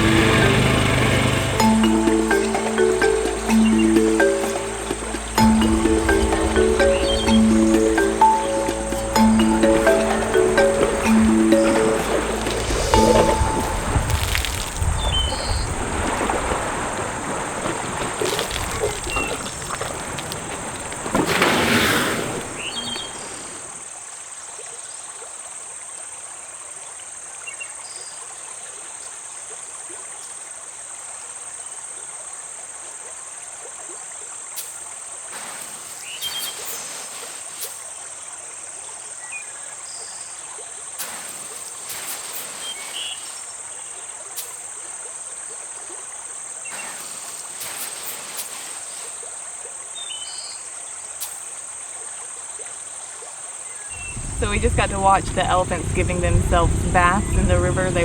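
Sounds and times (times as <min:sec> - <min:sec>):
high-pitched insect chorus: 0:00.0 - 0:21.6, 0:46.7 - 0:49.3
elephants splashing in water: 0:00.0 - 0:23.8, 0:35.2 - 0:38.1, 0:41.0 - 0:44.7, 0:46.6 - 0:49.6, 0:53.9 - 0:58.0
river water hissing: 0:00.0 - 0:24.3, 0:34.4 - 0:52.6, 0:53.2 - 0:58.0.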